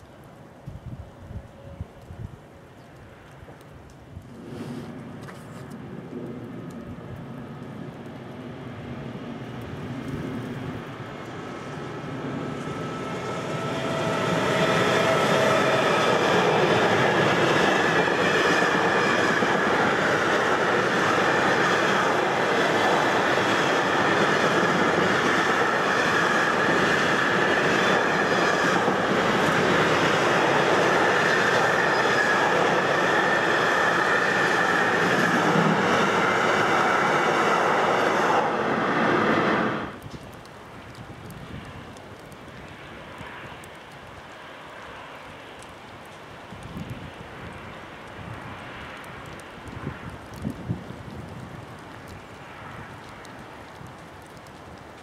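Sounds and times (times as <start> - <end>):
freight train rumbling past: 5.8 - 40.0.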